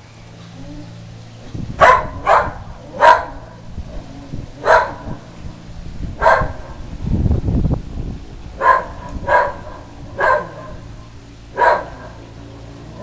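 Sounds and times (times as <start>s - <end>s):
dog barking: 1.8s - 3.6s, 4.6s - 5.2s, 6.2s - 6.8s, 8.6s - 10.8s, 11.6s - 12.2s.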